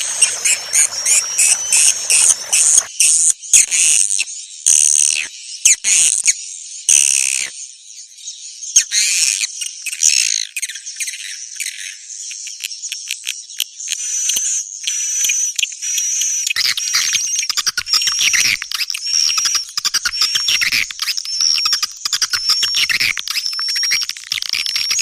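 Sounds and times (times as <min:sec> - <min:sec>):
songbird chirps and trills: 0:00.0 - 0:02.9.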